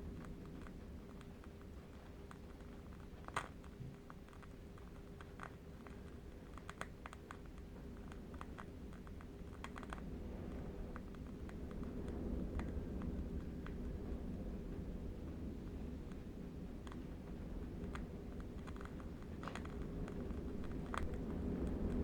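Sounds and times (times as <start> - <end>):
distant wind rumble: 10.0 - 22.0
candle wick crackling: 17.0 - 22.0.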